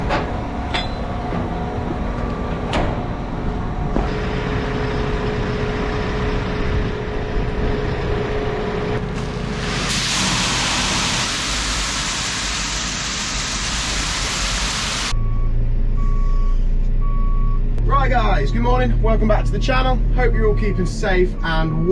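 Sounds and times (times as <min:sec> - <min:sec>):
tractor engine running: 0:00.0 - 0:09.9
loud even hiss: 0:09.2 - 0:15.1.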